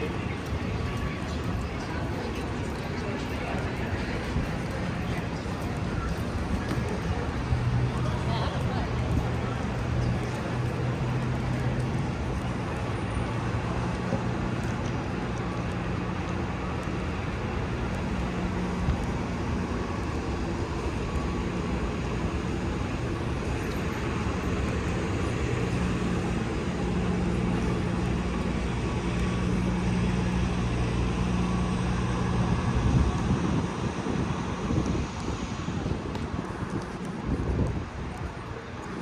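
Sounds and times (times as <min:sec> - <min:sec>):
street traffic passing: 0:00.0 - 0:39.0.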